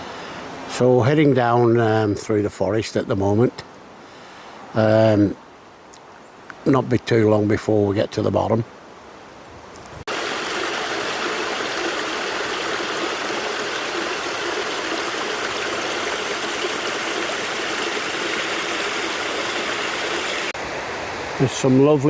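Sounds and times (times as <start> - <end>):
stream water rushing: 10.1 - 22.0.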